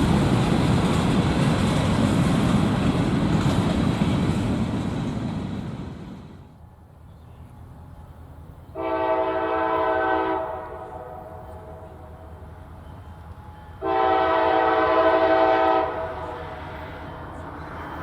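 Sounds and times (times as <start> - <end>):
train rumbling: 0.0 - 18.0
locomotive air horn blasts: 8.8 - 12.2, 13.8 - 16.6.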